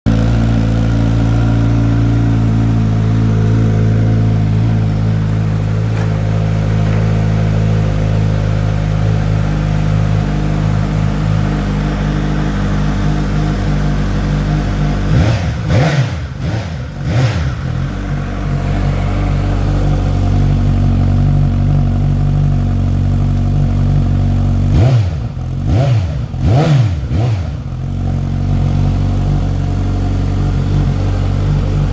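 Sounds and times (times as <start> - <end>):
motorcycle engine idling and revving: 0.0 - 31.9.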